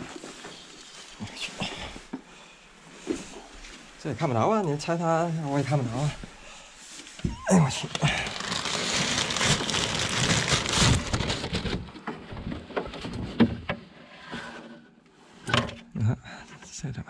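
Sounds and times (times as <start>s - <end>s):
handling rustling and crackling: 2.9s - 13.4s.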